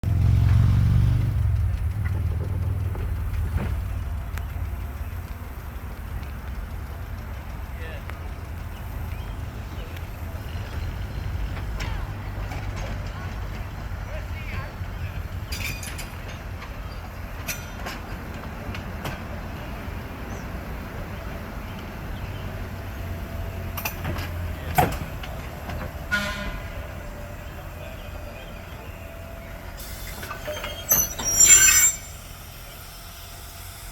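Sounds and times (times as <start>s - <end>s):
rail car rumbling on rails: 0.0s - 33.9s
train horn: 26.1s - 26.9s.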